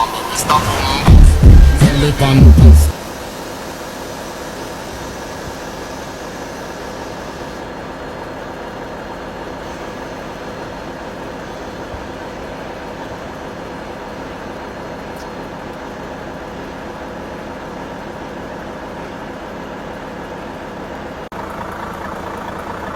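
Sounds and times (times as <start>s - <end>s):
road noise: 0.0s - 3.0s, 21.3s - 22.9s
truck engine droning: 0.0s - 3.0s, 21.2s - 22.9s.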